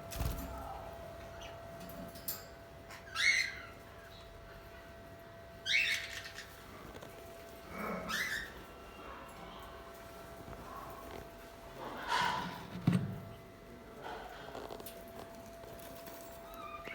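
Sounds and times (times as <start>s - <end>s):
budgerigars chirping: 5.6s - 6.6s.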